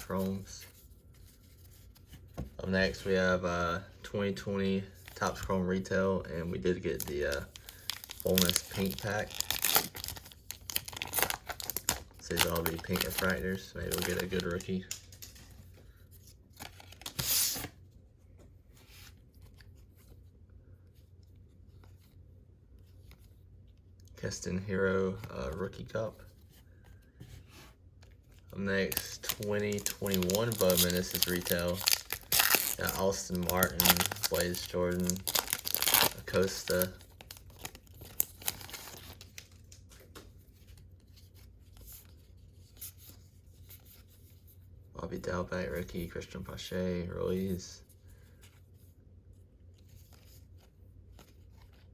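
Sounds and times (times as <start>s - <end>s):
wrapper ripping open: 6.9s - 15.4s, 16.6s - 17.7s, 28.8s - 39.8s
cards being flipped through: 6.9s - 20.2s, 28.0s - 40.8s
cards ticking when handled: 28.8s - 40.3s.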